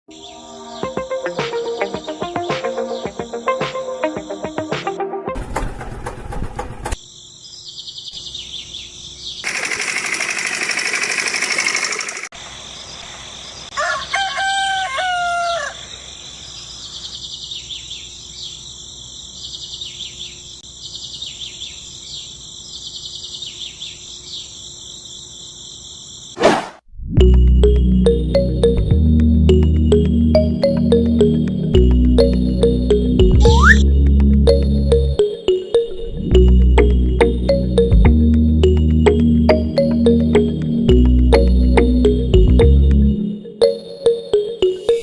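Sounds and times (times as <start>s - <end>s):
insect chirping: 7.0s - 9.7s, 11.3s - 14.4s, 15.2s - 26.4s
rooster crowing: 13.7s - 16.1s.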